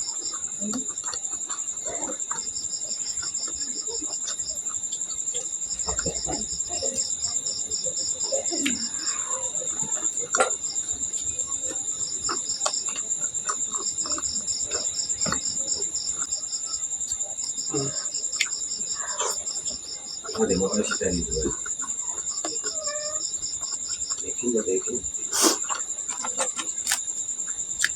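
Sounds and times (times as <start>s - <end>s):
crickets chirping: 0.0s - 27.9s
person eating: 0.3s - 7.0s, 8.2s - 16.3s, 17.7s - 24.2s, 25.2s - 27.0s.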